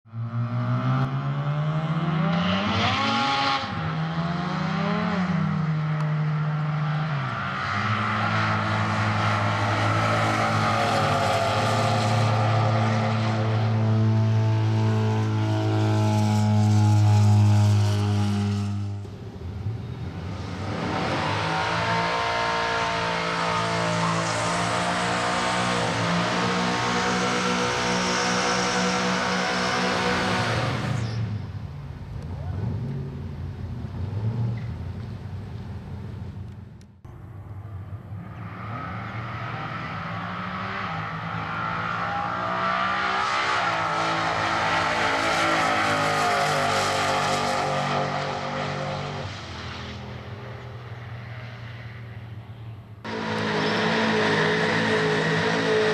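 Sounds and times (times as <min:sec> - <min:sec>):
drag car engine accelerating: 0:00.3 - 0:35.0, 0:38.0 - 0:50.2, 0:53.0 - 0:55.9.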